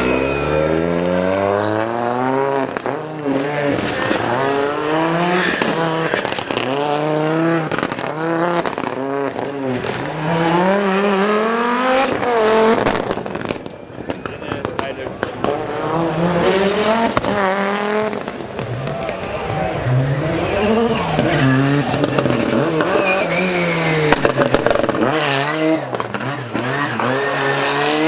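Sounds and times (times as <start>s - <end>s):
rally car engine revving: 0.0s - 28.0s
sharp cracks: 2.6s - 13.8s.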